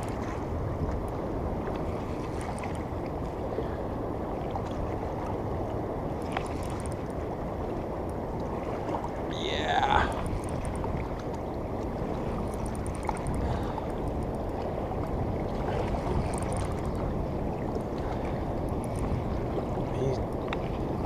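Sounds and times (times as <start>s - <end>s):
river water flowing: 0.0s - 21.0s
wind: 0.0s - 21.0s
faint high ticks: 0.8s - 2.8s, 6.2s - 7.2s, 10.0s - 14.7s, 16.2s - 16.9s, 18.6s - 19.2s.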